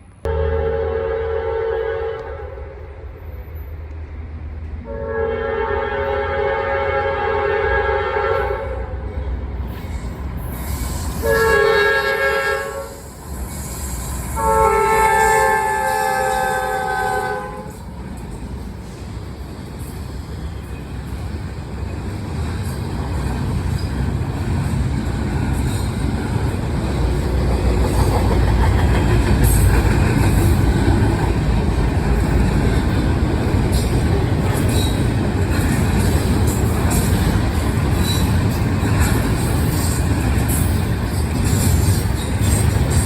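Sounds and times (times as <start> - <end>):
train passing rumble: 0.0 - 43.0
locomotive chord horn: 0.3 - 3.1, 4.8 - 9.1, 11.2 - 13.1, 14.3 - 17.8.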